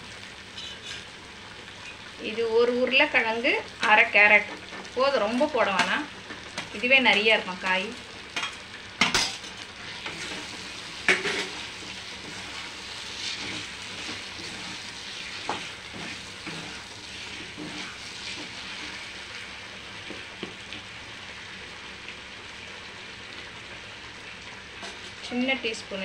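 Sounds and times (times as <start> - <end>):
vegetables sizzling in a pan: 0.0 - 26.0
ladle scraping a pan: 9.8 - 19.1.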